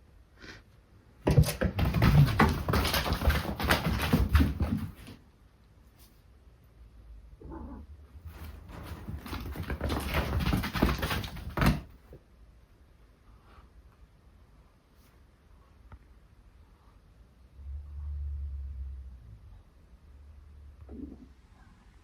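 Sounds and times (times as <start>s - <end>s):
cat paws scrabbling on floor: 1.2s - 5.2s, 8.3s - 12.2s.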